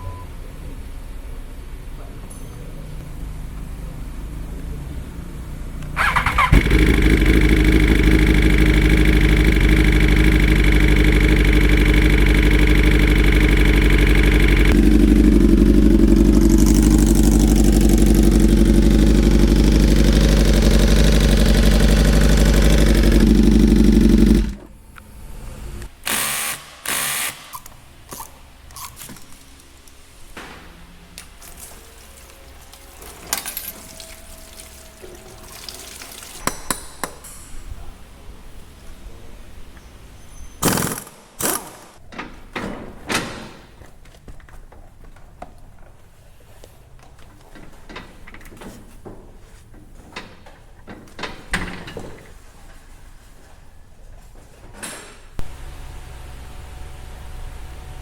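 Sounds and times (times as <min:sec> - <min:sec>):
motorcycle engine starting and running: 0:05.7 - 0:27.3.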